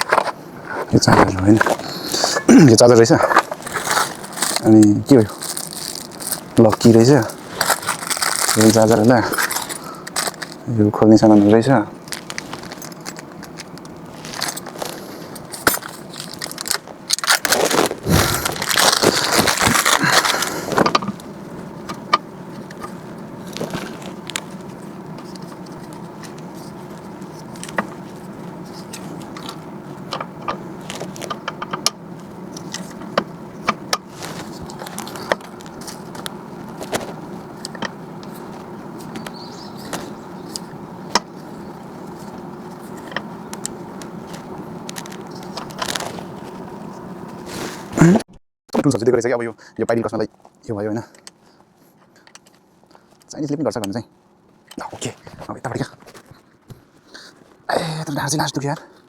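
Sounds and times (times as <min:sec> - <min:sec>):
packaging rustling: 0:00.0 - 0:10.7, 0:11.3 - 0:21.9, 0:22.6 - 0:31.5, 0:34.0 - 0:47.9
steady low hum: 0:00.0 - 0:59.0
metal tools clinking: 0:05.5 - 0:10.6.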